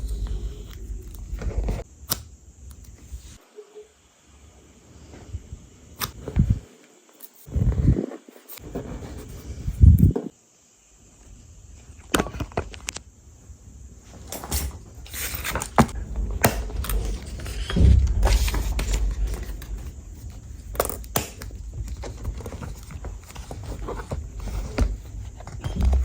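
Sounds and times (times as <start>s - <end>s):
paper rustling: 15.1s - 26.0s.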